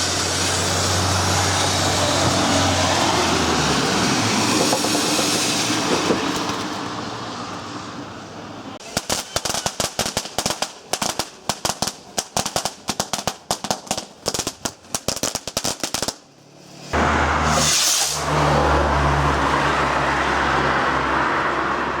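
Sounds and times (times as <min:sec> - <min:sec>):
firework crackling: 0:00.0 - 0:07.1, 0:08.8 - 0:19.2
loud rushing noise: 0:00.0 - 0:07.9, 0:16.4 - 0:22.0
brief hiss: 0:16.6 - 0:18.8.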